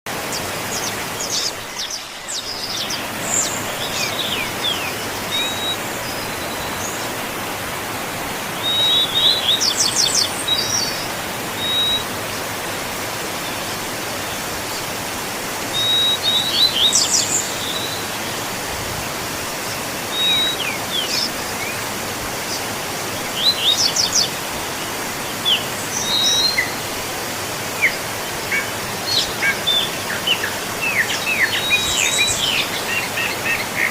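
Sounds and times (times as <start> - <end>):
birds singing: 0.1 - 7.7, 8.4 - 12.6, 13.3 - 18.6, 19.2 - 33.9
waterfall rushing: 0.1 - 33.9.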